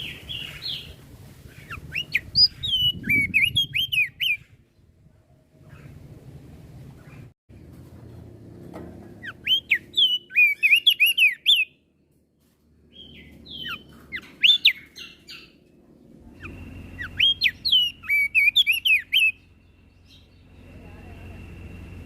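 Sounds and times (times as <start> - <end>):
bird whistled song: 0.0 - 4.8, 9.2 - 11.8, 12.9 - 15.6, 16.3 - 20.9.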